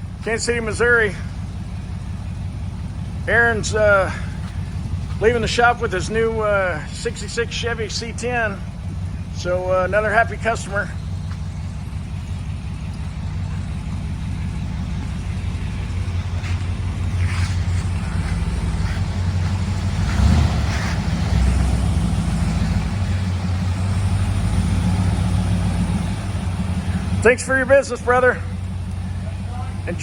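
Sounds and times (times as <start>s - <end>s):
pickup engine rumbling: 0.0s - 30.0s.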